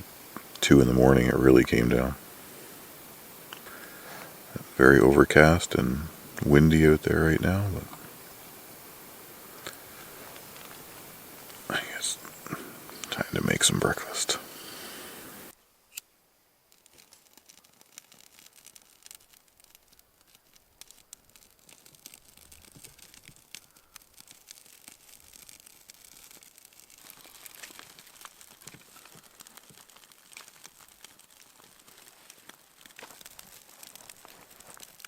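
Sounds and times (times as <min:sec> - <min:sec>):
food packaging crinkling: 0:16.8 - 0:35.0.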